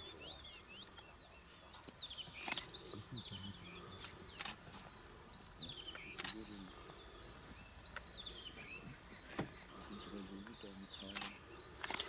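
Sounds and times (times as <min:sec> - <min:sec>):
birds chirping: 0:00.0 - 0:12.0
sharp clicks: 0:02.4 - 0:02.8, 0:04.0 - 0:04.6, 0:05.9 - 0:06.4, 0:11.1 - 0:12.0.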